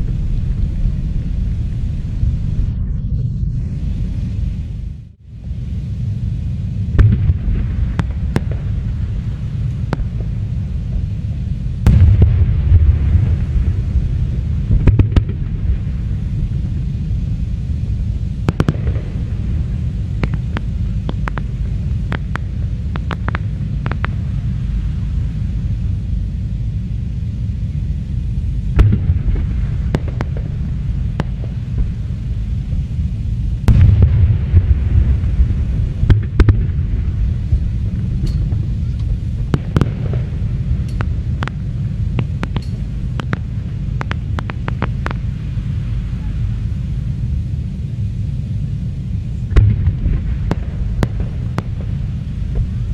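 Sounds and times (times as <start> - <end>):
constant low rumble: 0.0 - 52.9
aerial fireworks bangs: 6.9 - 11.1, 11.8 - 16.8, 18.4 - 24.6, 28.8 - 32.9, 33.6 - 45.8, 49.5 - 52.9.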